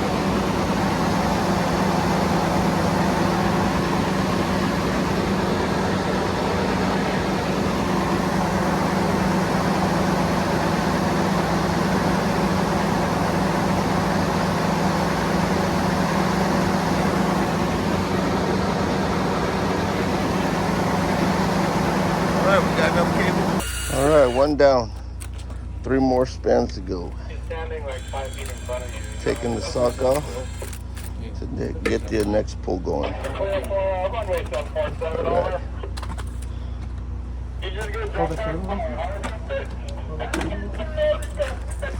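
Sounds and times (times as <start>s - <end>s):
engine humming: 0.0s - 41.9s.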